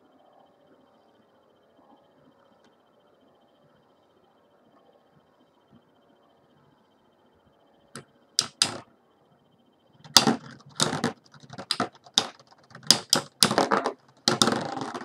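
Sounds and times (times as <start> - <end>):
spinning tops clashing: 10.1 - 15.0.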